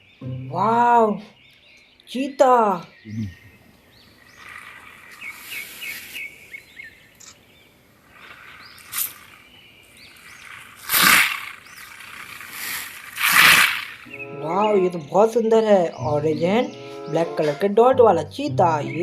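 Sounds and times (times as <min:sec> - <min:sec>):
small birds chirping: 0:00.0 - 0:19.0
hissing whooshes: 0:10.2 - 0:14.2.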